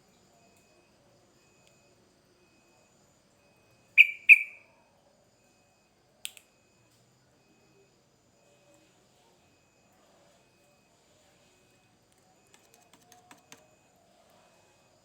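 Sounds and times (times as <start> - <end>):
bird sharp call notes: 4.0 - 4.6.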